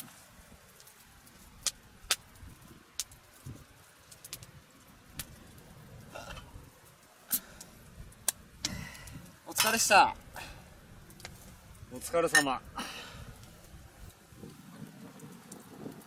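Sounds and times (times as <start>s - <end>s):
sharp clicks and light knocks: 0.7s - 5.6s, 11.0s - 12.6s.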